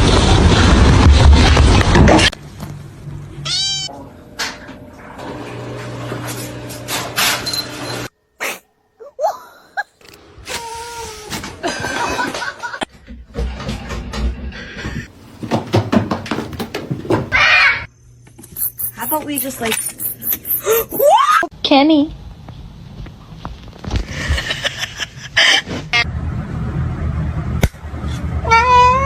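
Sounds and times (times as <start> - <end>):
loud noisy sound: 0.0 - 2.4
cat meowing: 28.4 - 29.0.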